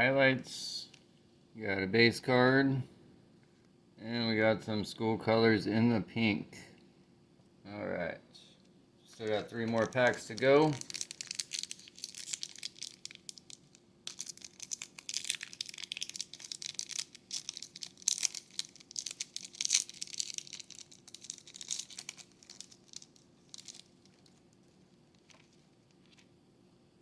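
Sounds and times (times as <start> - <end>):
plastic wrapper tearing and crinkling: 9.1 - 26.3.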